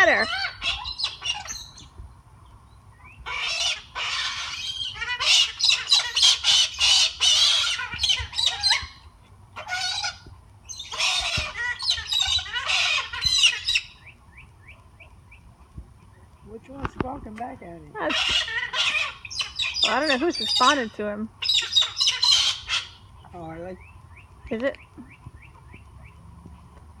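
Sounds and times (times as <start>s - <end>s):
parrots squawking: 0.0s - 1.9s, 3.0s - 14.1s, 17.6s - 23.9s.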